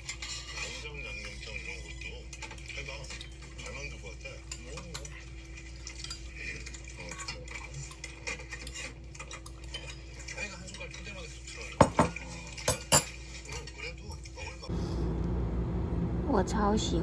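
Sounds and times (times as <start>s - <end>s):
cutlery clinking on a plate: 4.5s - 14.2s.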